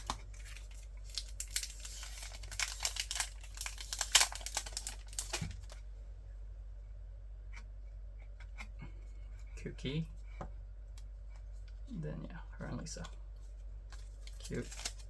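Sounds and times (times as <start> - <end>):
plastic wrapping crinkling: 0.0 - 5.8, 13.9 - 15.0.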